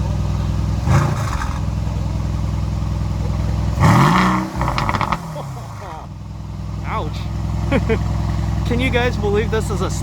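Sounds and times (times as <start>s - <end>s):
car engine idling and revving: 0.0s - 10.0s
exhaust crackles: 0.0s - 10.0s.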